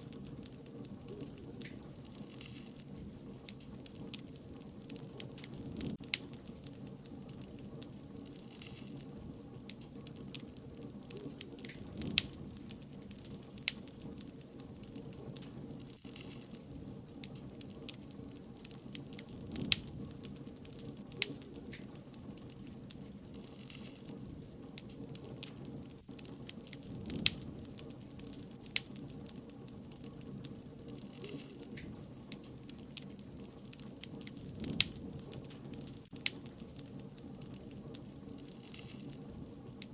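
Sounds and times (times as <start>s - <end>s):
bonfire crackling and popping: 0.0s - 39.9s.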